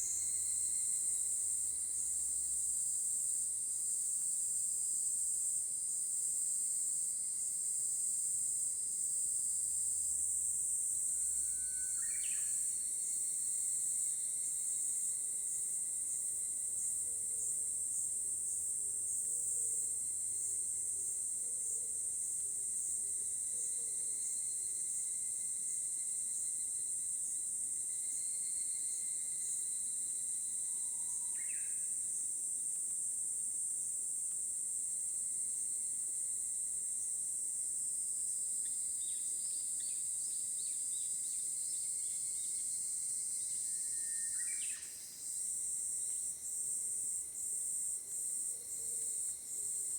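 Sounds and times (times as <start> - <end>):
insect chorus trilling: 0.0 - 2.4, 10.7 - 32.0, 38.6 - 49.9.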